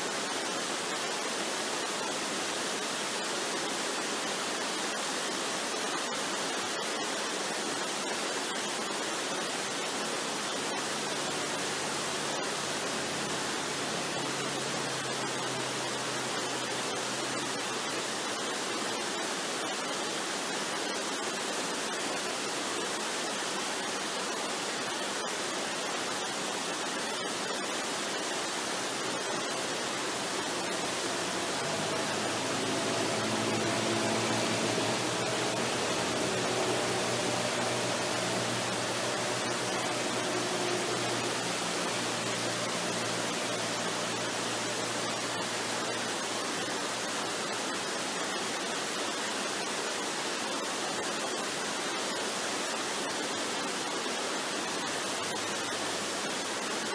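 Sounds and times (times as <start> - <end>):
waterfall rushing: 0.0 - 56.9
soft sustained musical tones: 10.6 - 18.0, 28.6 - 48.3.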